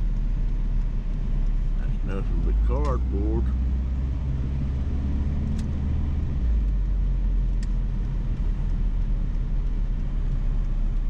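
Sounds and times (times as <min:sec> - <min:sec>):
car engine rumble: 0:00.0 - 0:11.0
road noise: 0:00.0 - 0:11.0
faint ticks: 0:07.4 - 0:11.0.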